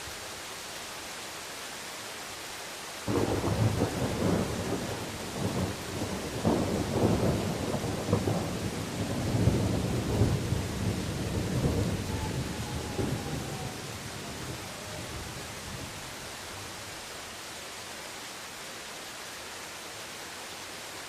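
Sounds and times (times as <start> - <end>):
steady rain: 0.0 - 21.0
thunder rumbling: 3.1 - 16.2.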